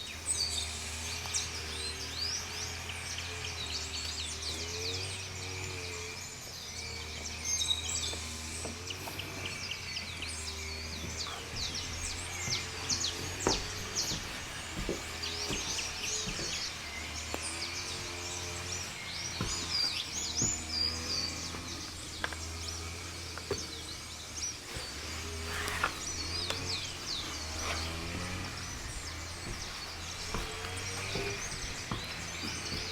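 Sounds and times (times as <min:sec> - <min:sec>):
birds chirping and trilling: 0:00.0 - 0:32.9.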